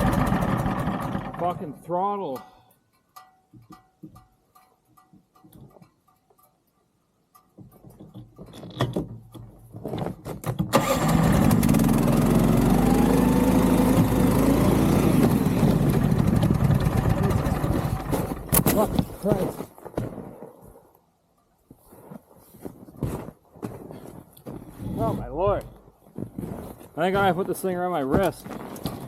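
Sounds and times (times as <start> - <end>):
small engine revving high: 10.8 - 18.1.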